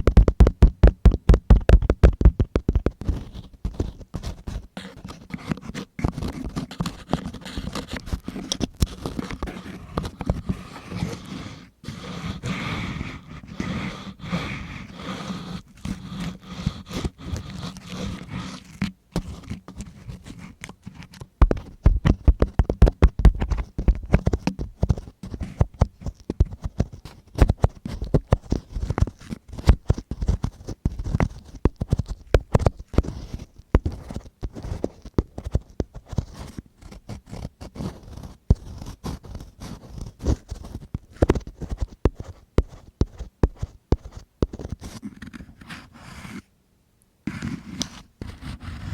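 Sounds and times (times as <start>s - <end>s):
tool scraping against microphone: 4.8s - 20.8s.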